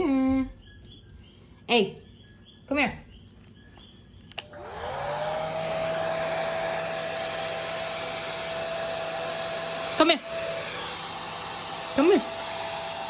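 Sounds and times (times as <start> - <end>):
blow dryer motor whine: 4.4 - 13.0.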